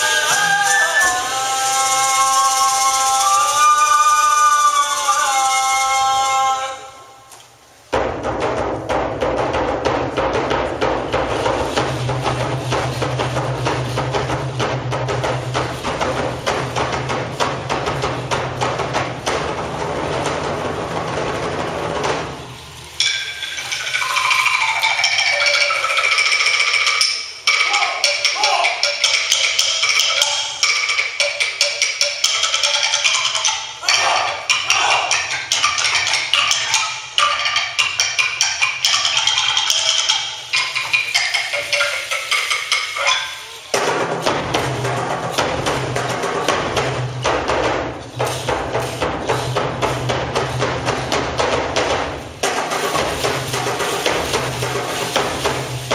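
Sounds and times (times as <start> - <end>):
high shrill held tones: 0.0 - 7.3, 23.0 - 29.1
wooden percussion knocks: 23.0 - 55.9.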